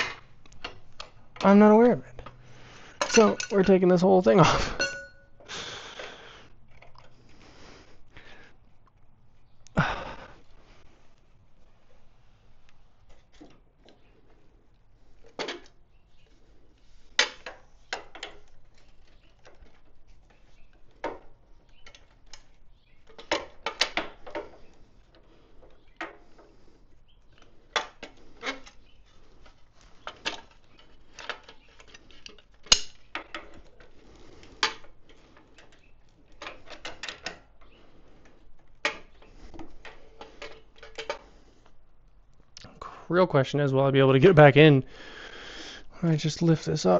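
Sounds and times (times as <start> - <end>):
tools clinking on metal: 3.0 - 5.4, 31.2 - 33.6.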